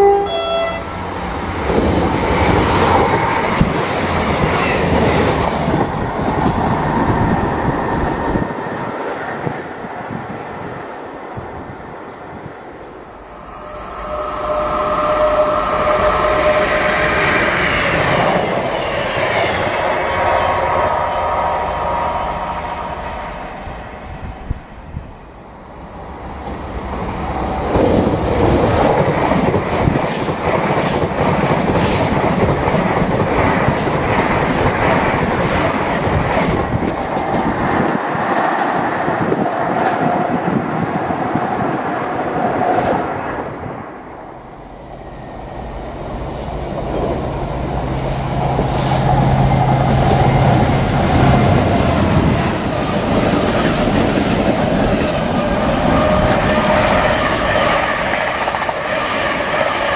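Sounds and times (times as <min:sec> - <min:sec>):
diesel locomotive engine hum: 0:00.0 - 0:59.9
passenger train passing: 0:00.0 - 0:59.9.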